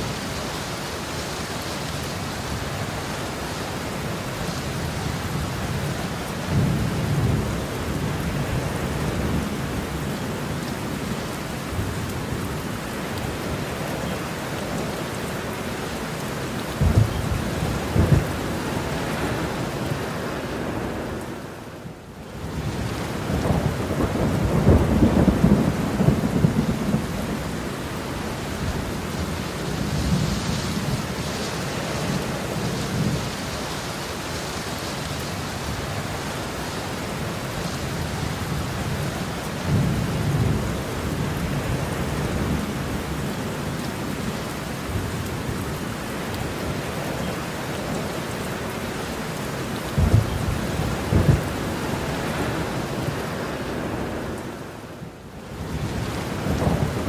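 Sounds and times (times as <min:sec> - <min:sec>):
heavy rain falling: 0:00.0 - 0:57.0
thunder rumbling: 0:16.7 - 0:20.2, 0:22.5 - 0:33.5, 0:49.9 - 0:53.3, 0:55.6 - 0:57.0
sharp thunder cracks: 0:50.0 - 0:51.6.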